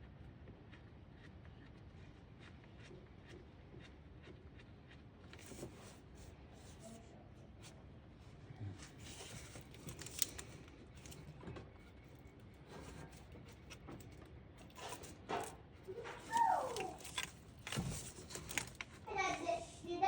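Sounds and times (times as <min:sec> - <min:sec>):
tools and parts handled: 0:09.0 - 0:11.3, 0:12.7 - 0:19.0.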